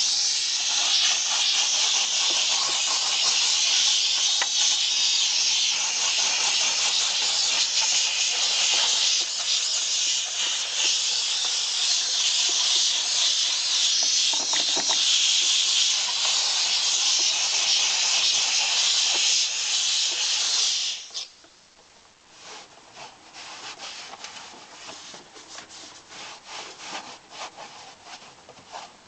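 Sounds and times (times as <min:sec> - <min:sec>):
spray nozzle hissing: 0:00.0 - 0:21.4.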